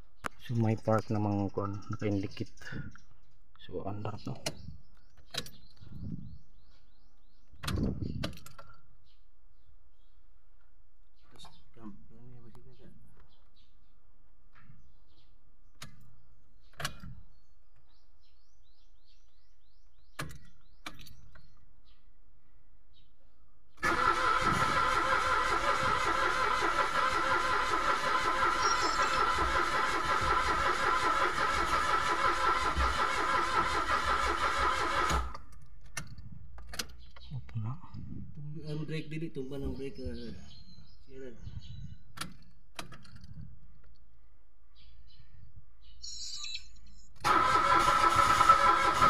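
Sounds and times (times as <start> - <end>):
starter motor cranking engine: 23.8 - 35.5, 47.2 - 49.0.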